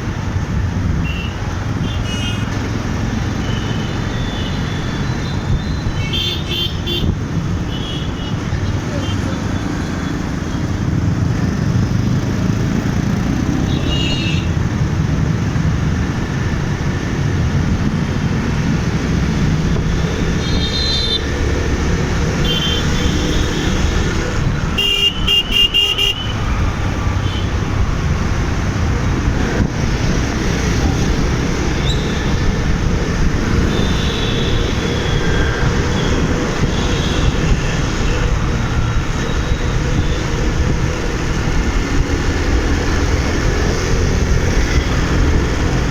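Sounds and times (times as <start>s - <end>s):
engine and road noise: 0.0s - 45.9s
vehicle horns honking: 5.8s - 8.4s, 13.6s - 14.6s, 20.4s - 21.2s, 22.4s - 23.8s, 24.8s - 27.6s, 33.6s - 38.3s.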